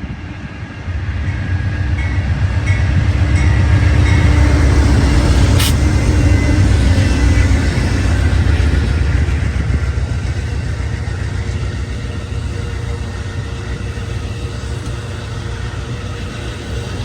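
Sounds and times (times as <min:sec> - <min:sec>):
train rumbling past: 0:00.0 - 0:17.0
sharp click: 0:05.6 - 0:05.8.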